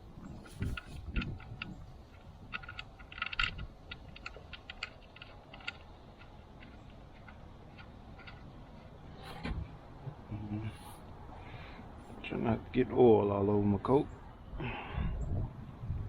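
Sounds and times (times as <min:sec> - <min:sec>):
hand tools clicking and tapping: 0:00.2 - 0:09.0.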